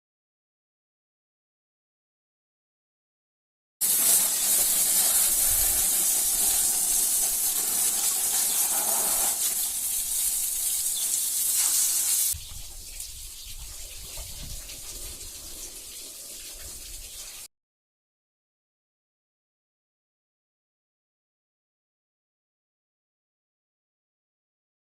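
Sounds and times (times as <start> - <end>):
steady rushing hiss: 3.8 - 17.5.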